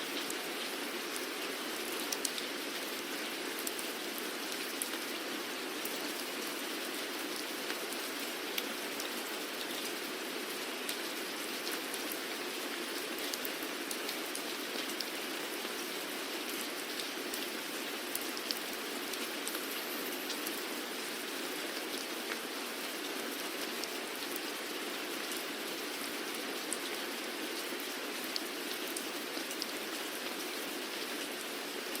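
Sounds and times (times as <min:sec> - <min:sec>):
steady rainfall: 0:00.0 - 0:32.0.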